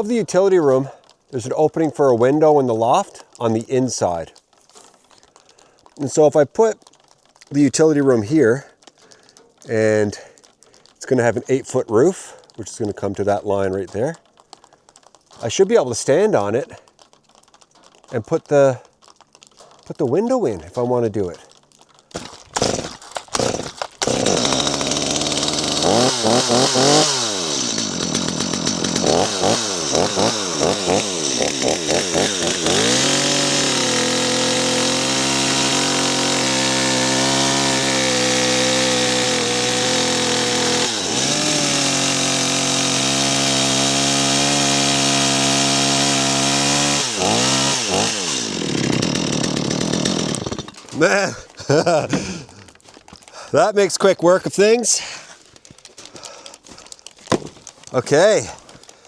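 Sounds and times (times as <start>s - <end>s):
chainsaw cutting wood: 14.2s - 20.0s, 20.9s - 59.0s
chainsaw revving: 22.2s - 53.6s, 55.9s - 59.0s.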